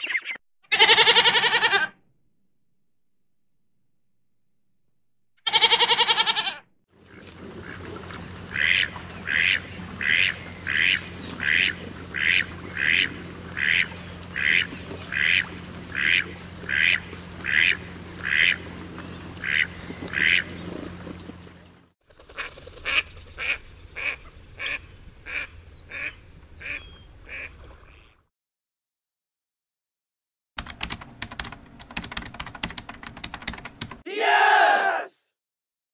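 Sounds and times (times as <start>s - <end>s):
goat bleating: 0.7s - 1.9s, 5.5s - 6.6s
duck quacking: 8.5s - 18.6s, 19.4s - 20.5s, 22.4s - 28.1s.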